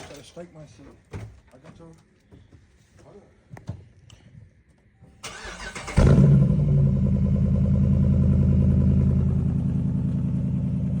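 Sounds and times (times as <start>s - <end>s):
car starter cranking: 5.2s - 6.4s
car engine starting and idling: 5.2s - 11.0s.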